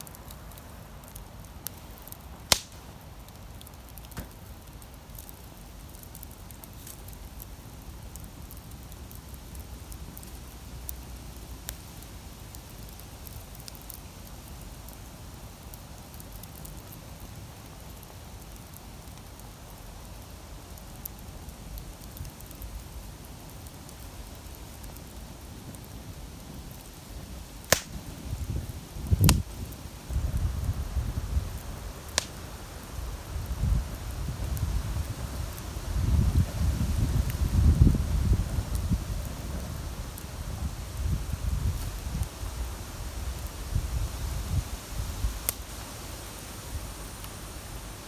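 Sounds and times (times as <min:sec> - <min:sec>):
campfire crackling: 0:00.0 - 0:48.0
loud sharp pop: 0:02.5 - 0:02.9, 0:27.7 - 0:28.1, 0:32.2 - 0:32.4.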